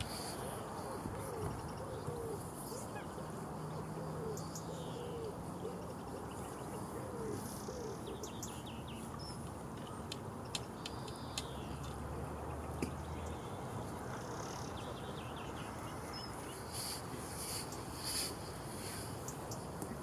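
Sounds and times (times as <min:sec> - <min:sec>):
steady background hiss: 0:13.3 - 0:20.0.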